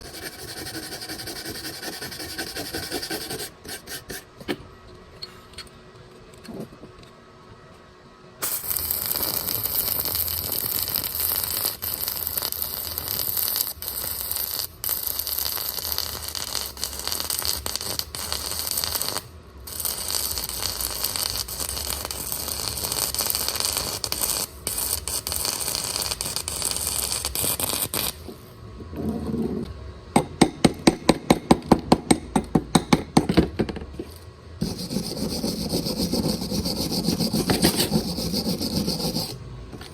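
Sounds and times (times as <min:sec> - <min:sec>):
welding arc crackling: 0:08.4 - 0:28.3.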